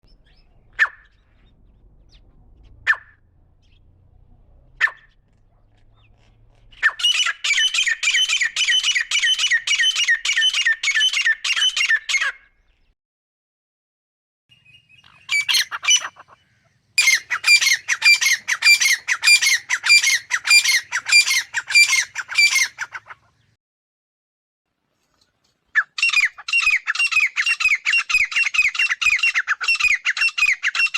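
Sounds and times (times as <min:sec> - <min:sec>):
francolin calling: 0:14.5 - 0:23.0.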